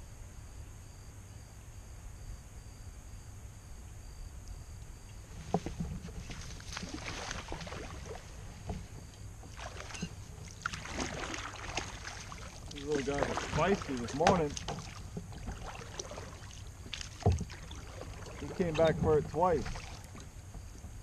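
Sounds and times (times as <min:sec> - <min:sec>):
knocks and clicks against kayak: 0:05.4 - 0:06.8, 0:08.3 - 0:10.8, 0:11.8 - 0:21.0
water splashing: 0:05.4 - 0:20.9.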